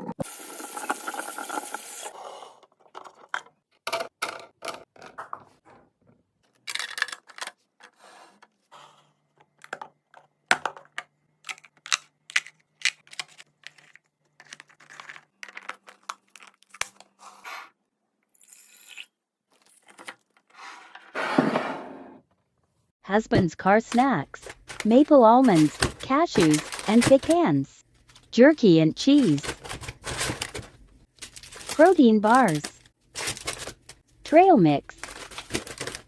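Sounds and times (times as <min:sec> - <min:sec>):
wrapper rustling and crinkling: 0:24.4 - 0:27.4, 0:29.2 - 0:34.1, 0:35.0 - 0:36.0.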